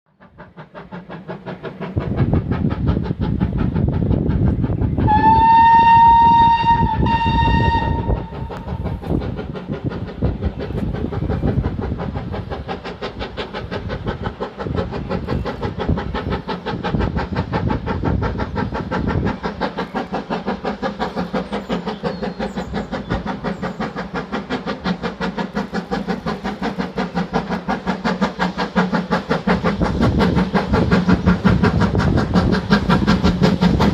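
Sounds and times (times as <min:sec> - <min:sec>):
steam train running: 0:00.1 - 0:33.9
steam locomotive whistle: 0:05.0 - 0:08.8.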